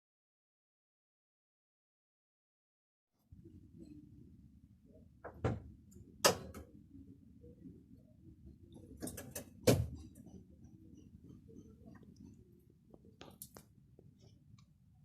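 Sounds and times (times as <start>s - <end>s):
low background hum: 3.2s - 15.0s.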